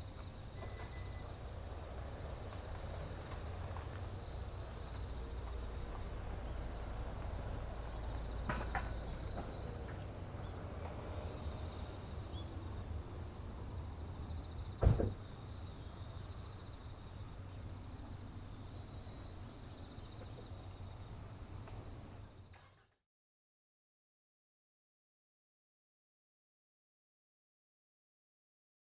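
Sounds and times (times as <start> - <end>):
insects trilling: 0.0 - 22.8
dull thump: 14.8 - 15.3.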